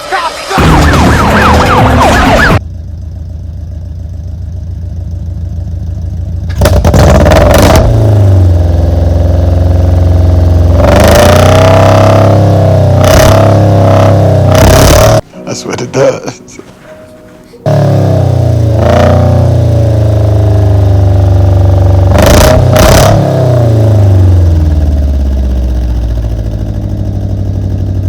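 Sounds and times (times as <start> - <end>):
loud car engine revving: 0.6 - 2.6, 6.5 - 15.2, 17.7 - 28.0.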